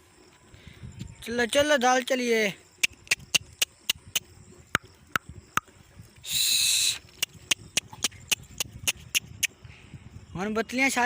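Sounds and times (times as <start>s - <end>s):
hooves clicking on hard ground: 2.8s - 9.6s.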